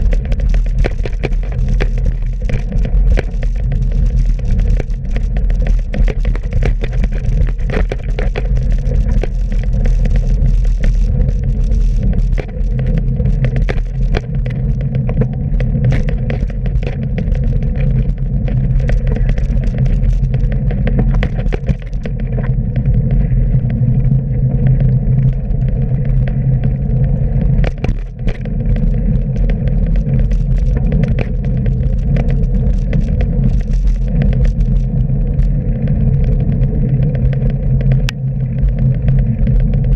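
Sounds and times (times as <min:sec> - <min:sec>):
sharp knocks and clicks: 0:00.0 - 0:23.8, 0:27.4 - 0:34.8
road and wind rumble: 0:00.0 - 0:39.9.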